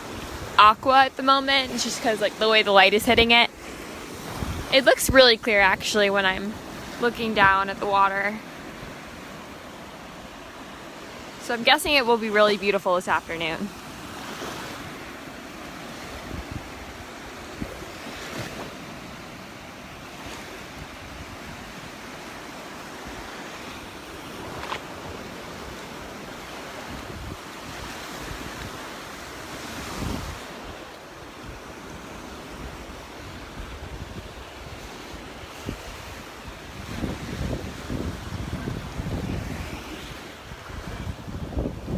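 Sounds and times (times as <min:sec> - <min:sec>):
wind buffeting microphone: 0:00.0 - 0:10.4, 0:16.0 - 0:19.2, 0:24.1 - 0:30.8, 0:31.4 - 0:41.9
surf breaking on beach: 0:00.0 - 0:41.9.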